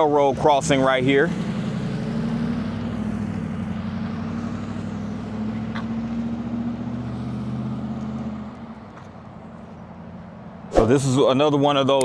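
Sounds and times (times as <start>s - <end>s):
vehicle engine humming: 0.0s - 11.9s.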